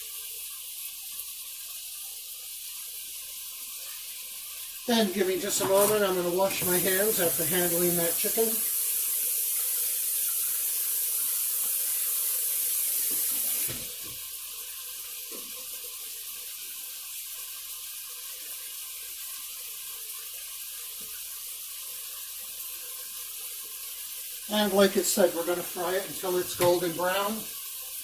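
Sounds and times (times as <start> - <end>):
tap water running: 0.0 - 28.0
hands washing under water: 5.0 - 8.7, 24.5 - 27.5.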